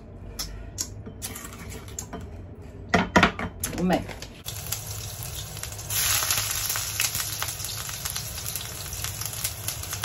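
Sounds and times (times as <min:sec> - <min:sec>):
ginger sizzling in hot oil: 0:04.4 - 0:10.0.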